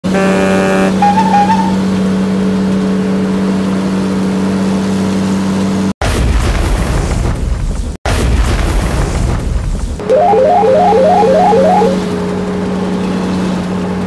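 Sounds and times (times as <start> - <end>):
warbling beep: 10.0 - 12.1.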